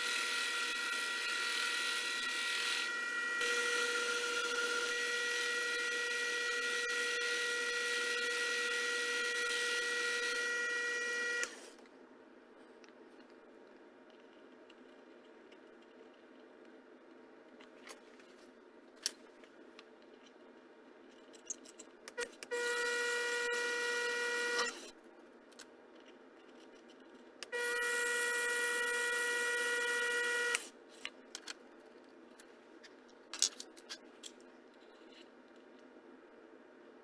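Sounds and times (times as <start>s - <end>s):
small electric motor whining: 0.0s - 11.7s, 22.5s - 24.9s, 27.4s - 30.7s.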